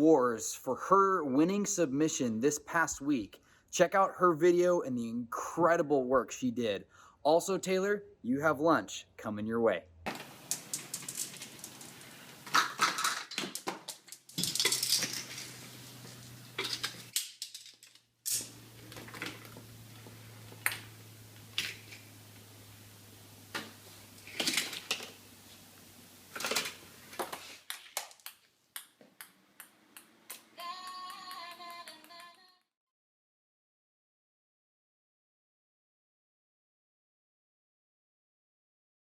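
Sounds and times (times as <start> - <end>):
low steady hum: 18.4 - 27.2.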